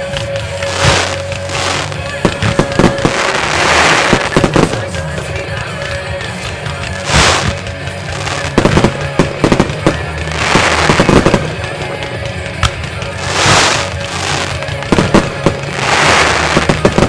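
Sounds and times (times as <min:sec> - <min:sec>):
long firework hissing: 0:00.0 - 0:05.2, 0:06.9 - 0:12.0, 0:13.1 - 0:17.0
firework shells bursting: 0:00.0 - 0:17.0.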